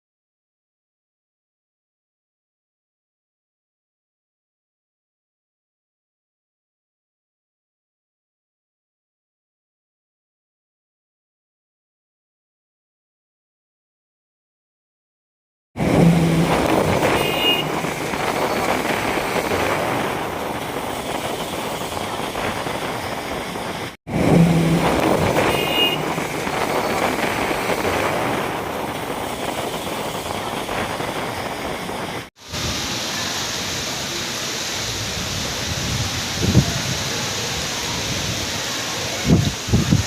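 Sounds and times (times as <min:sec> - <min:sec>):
rain hiss: 0:15.8 - 0:40.0
road traffic: 0:15.8 - 0:40.0.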